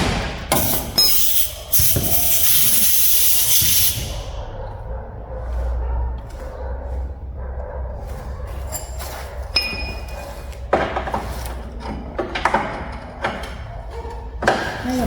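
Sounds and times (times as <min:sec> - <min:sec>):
steady spray hiss: 0:00.6 - 0:04.2.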